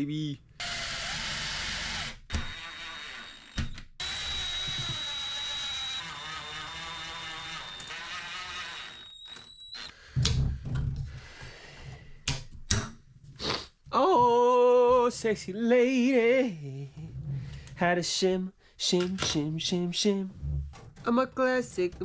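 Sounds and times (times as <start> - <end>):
cordless drill whining: 0.6 - 10.0.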